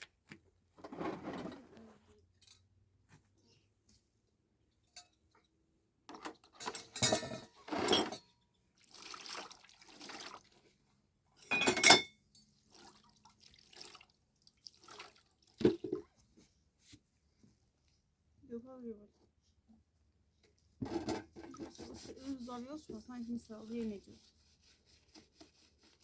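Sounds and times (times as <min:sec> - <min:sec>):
dishes clattering and clinking: 0:06.1 - 0:08.3, 0:11.4 - 0:12.2, 0:20.8 - 0:22.0.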